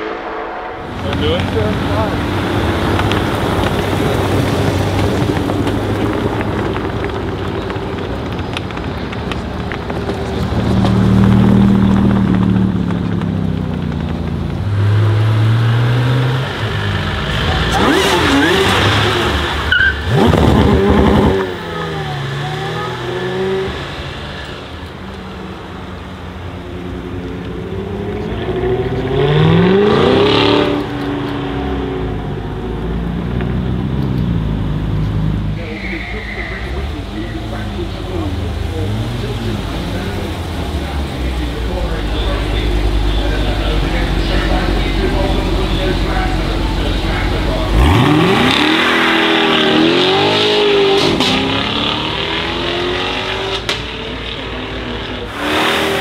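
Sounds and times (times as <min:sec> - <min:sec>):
sports car engine accelerating: 0:00.8 - 0:35.6, 0:36.9 - 0:56.0
car engine revving hard: 0:14.8 - 0:24.3, 0:27.6 - 0:35.4, 0:36.7 - 0:56.0.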